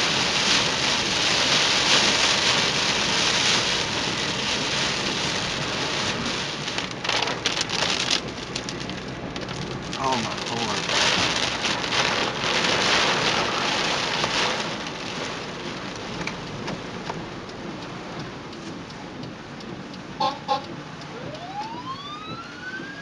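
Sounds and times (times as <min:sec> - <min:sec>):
heavy rain hissing: 0:09.8 - 0:16.0
siren rising in pitch: 0:20.4 - 0:23.0.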